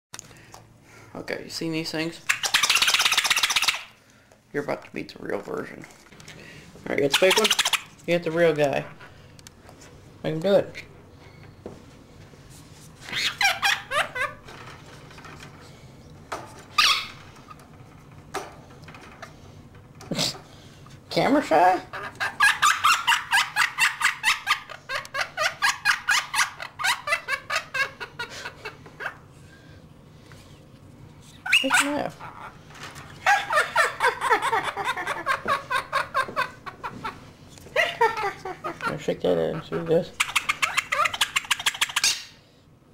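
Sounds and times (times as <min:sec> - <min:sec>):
pet bird squawking: 0:02.2 - 0:04.0, 0:07.0 - 0:08.0, 0:13.1 - 0:14.4, 0:16.7 - 0:17.3, 0:21.8 - 0:27.3, 0:31.3 - 0:32.6, 0:39.5 - 0:42.4.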